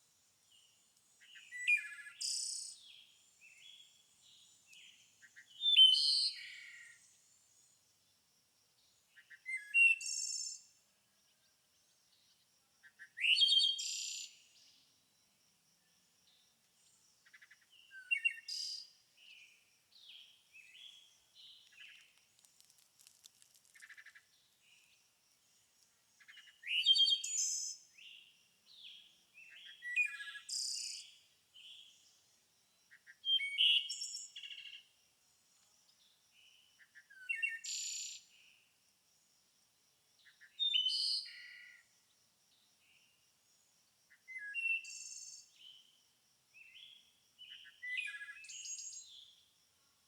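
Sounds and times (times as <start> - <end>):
songbirds singing and calling: 0.5 - 7.7, 8.8 - 10.8, 11.7 - 14.9, 15.8 - 22.3, 23.0 - 34.9, 35.6 - 38.6, 40.2 - 41.8, 46.6 - 49.4.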